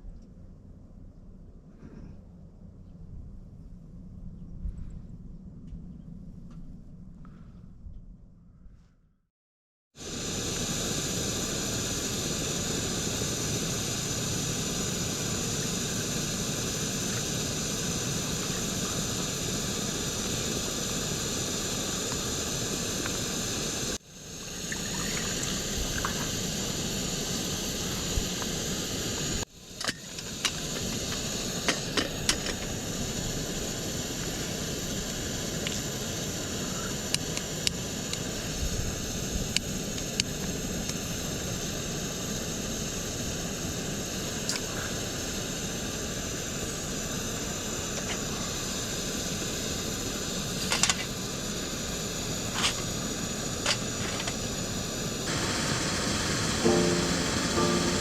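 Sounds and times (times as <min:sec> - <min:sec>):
loud steady hiss: 0:10.0 - 0:58.0.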